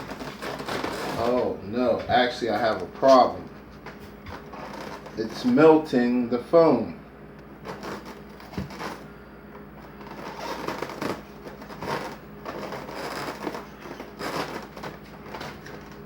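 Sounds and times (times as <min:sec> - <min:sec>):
foam squeaking and crackling: 0:00.0 - 0:01.6, 0:04.3 - 0:05.6, 0:07.6 - 0:09.1, 0:09.8 - 0:16.0
plastic scraping on styrofoam: 0:00.0 - 0:03.4, 0:04.1 - 0:05.9, 0:07.6 - 0:09.2, 0:09.8 - 0:16.0.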